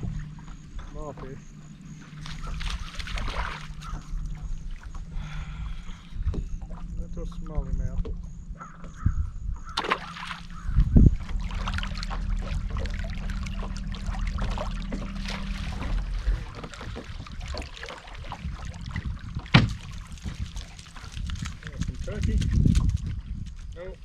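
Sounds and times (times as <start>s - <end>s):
water splashing and trickling: 0.0s - 8.3s, 9.6s - 24.0s
steady low hum: 0.0s - 24.0s
strong thump: 19.4s - 19.9s.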